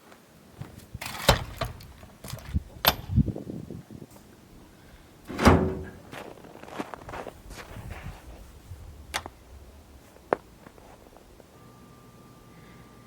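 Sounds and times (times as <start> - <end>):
knocks and thuds: 5.3 - 6.1.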